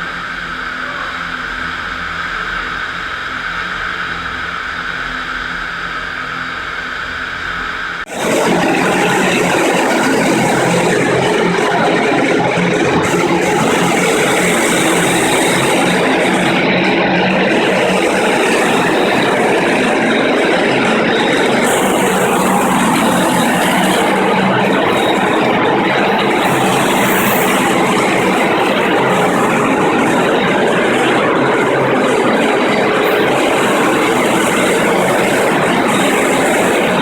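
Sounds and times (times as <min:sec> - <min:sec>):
concrete floor grinder grinding: 0:08.1 - 0:37.0
electric motor humming: 0:08.1 - 0:37.0.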